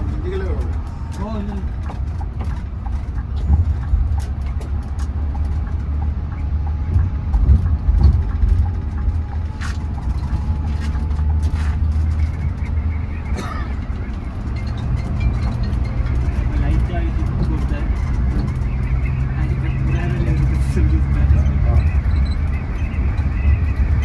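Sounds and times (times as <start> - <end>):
bus engine hum: 0.0 - 24.0
rattles and clicks: 0.0 - 24.0
road rumble: 0.0 - 24.0.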